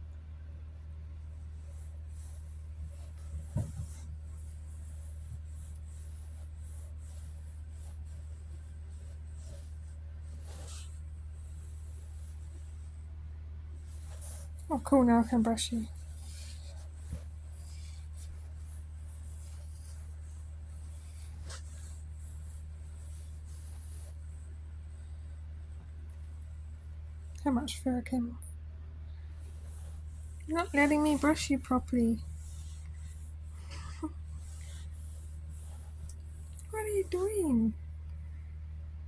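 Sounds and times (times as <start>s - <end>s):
steady low hum: 0.0s - 39.0s
brush stroking cat fur: 1.1s - 27.8s, 29.2s - 38.4s.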